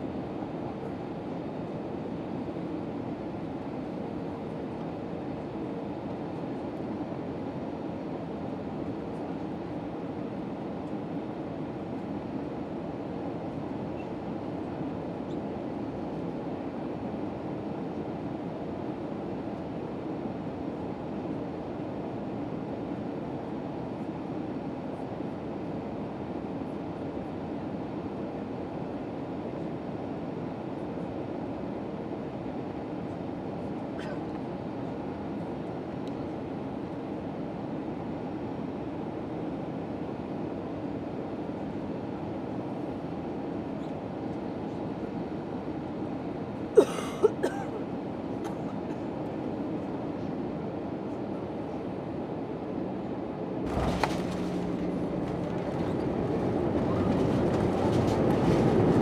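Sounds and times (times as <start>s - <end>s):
airliner cabin hum: 53.6s - 59.0s.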